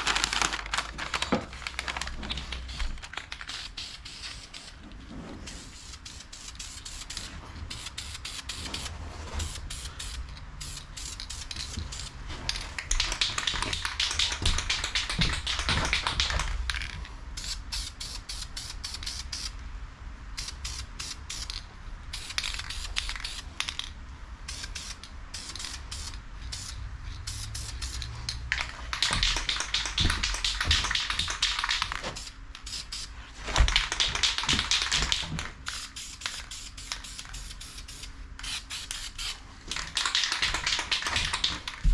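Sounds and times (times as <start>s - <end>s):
spray paint hissing: 2.6s - 4.8s, 5.5s - 12.2s, 17.4s - 19.6s, 20.4s - 23.6s, 24.5s - 28.1s, 29.0s - 33.2s, 33.8s - 39.4s.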